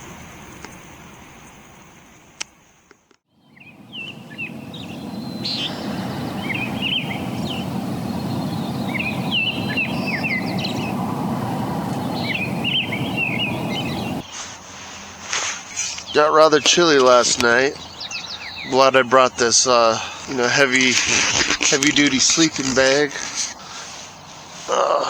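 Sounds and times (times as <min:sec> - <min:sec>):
small birds chirping: 0:03.4 - 0:14.5, 0:15.4 - 0:25.0
steady rushing noise: 0:03.8 - 0:14.3.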